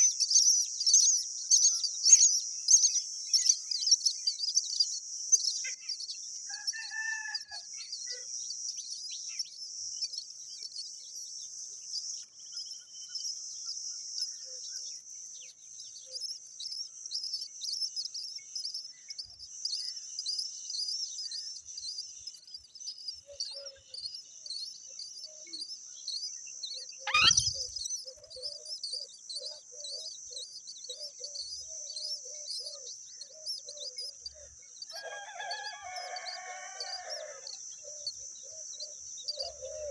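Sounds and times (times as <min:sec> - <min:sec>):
high-pitched bird chirping: 0:26.9 - 0:31.5
bird call sweeping downward: 0:27.1 - 0:27.7.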